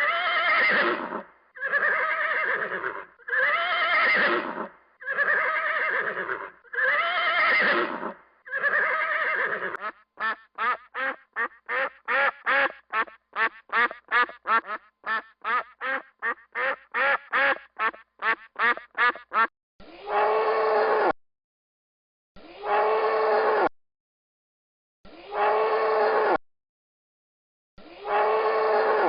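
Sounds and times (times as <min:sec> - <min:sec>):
horse whinnying: 0:00.0 - 0:09.8
duck quacking: 0:09.8 - 0:19.5
low animal call: 0:28.0 - 0:29.0.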